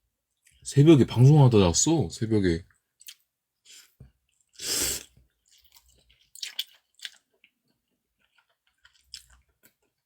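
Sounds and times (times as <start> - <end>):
quiet chewing: 3.0 - 10.0
noodle slurp: 4.6 - 6.0.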